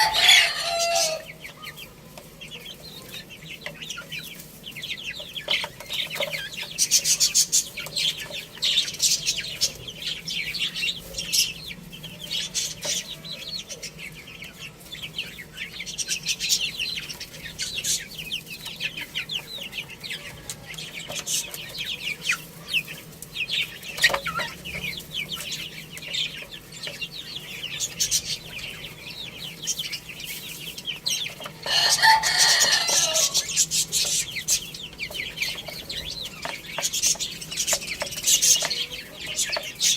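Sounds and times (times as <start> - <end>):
rooster crowing: 0.0 - 1.4, 19.4 - 21.5, 31.5 - 33.6
high chirps chatter: 0.0 - 39.9
poultry clucking: 0.0 - 39.9.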